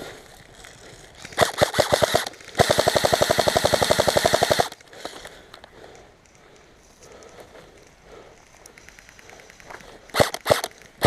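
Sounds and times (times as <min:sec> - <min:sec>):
airsoft rifle firing bursts: 0:01.3 - 0:05.2, 0:10.1 - 0:10.8.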